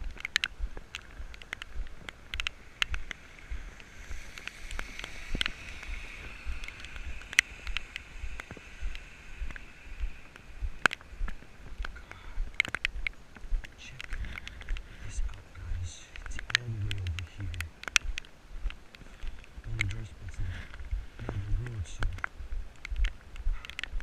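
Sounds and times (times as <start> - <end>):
rain: 0.0 - 24.0
wind rumbling on microphone: 0.0 - 24.0
wet hiss: 2.2 - 12.6.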